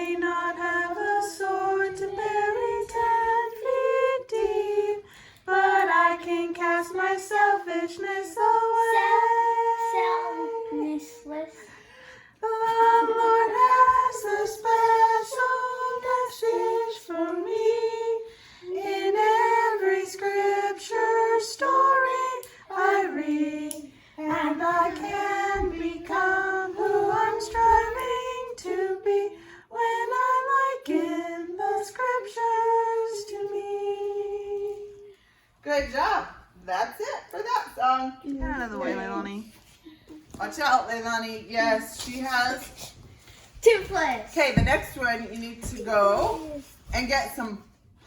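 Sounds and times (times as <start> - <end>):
woman and children singing: 0.0 - 36.5, 37.6 - 47.7
singers breathing: 5.0 - 5.5, 11.5 - 12.4, 18.2 - 18.7.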